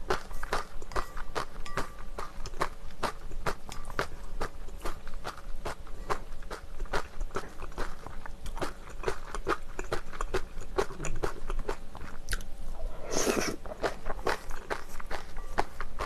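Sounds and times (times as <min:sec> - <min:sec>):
wet chewing of noodles: 0:00.0 - 0:16.0
noodle slurp: 0:13.0 - 0:13.9.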